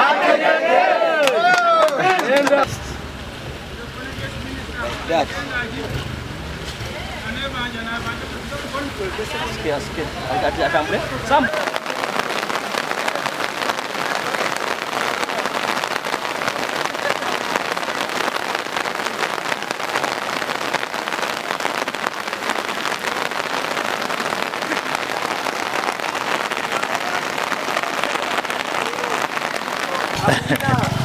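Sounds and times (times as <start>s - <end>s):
rain pattering: 1.3s - 31.0s
faint voices: 6.6s - 18.8s, 19.4s - 31.0s.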